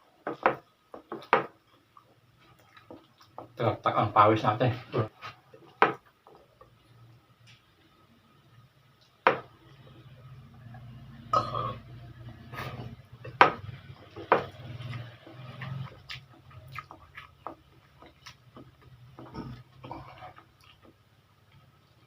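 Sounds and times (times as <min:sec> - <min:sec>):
chewing and slurping: 0:13.8 - 0:21.0.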